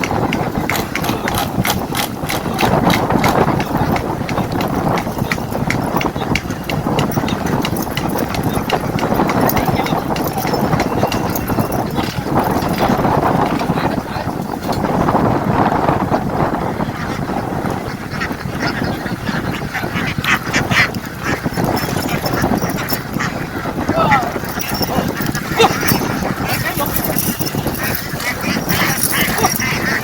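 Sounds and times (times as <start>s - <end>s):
rapid patter of clicks: 0.0s - 13.8s, 20.4s - 23.3s, 24.3s - 30.0s
flock of ducks calling: 16.7s - 30.0s.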